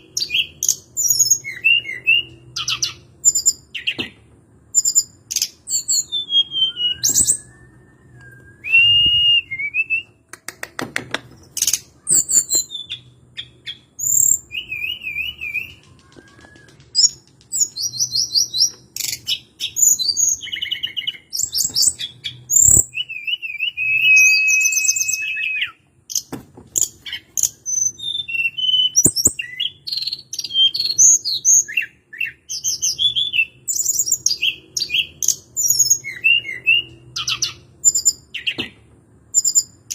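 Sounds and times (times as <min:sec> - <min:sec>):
bird singing: 0:00.0 - 0:10.2, 0:11.4 - 0:39.9
sharp clicks: 0:10.3 - 0:11.8.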